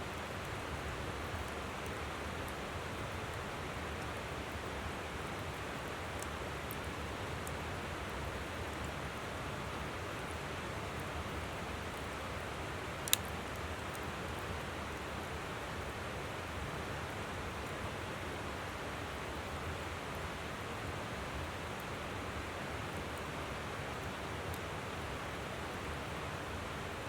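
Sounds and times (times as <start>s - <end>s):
campfire crackling: 0.2s - 9.0s, 10.5s - 15.9s.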